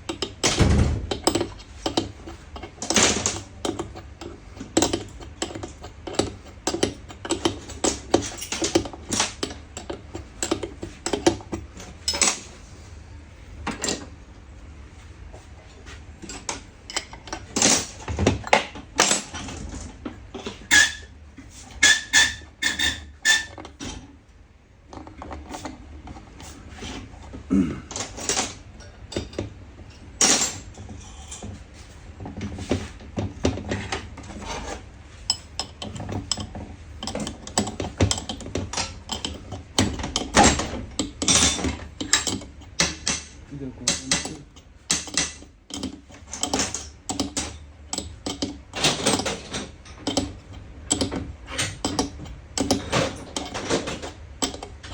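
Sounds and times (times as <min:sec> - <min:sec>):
metal parts clattering on workbench: 0:12.0 - 0:12.5, 0:30.2 - 0:30.7, 0:35.4 - 0:54.9.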